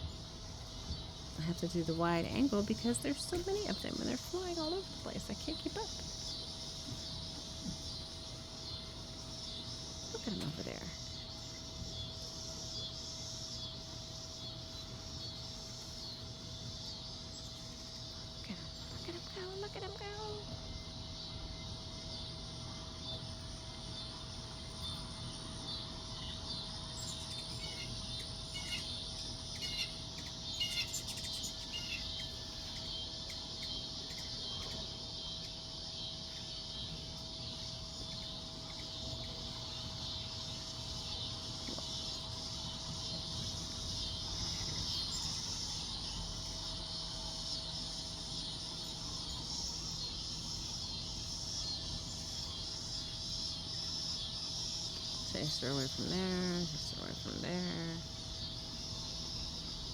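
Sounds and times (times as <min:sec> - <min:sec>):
birds chirping: 0:00.0 - 0:59.9
insects chirring: 0:00.0 - 0:59.9.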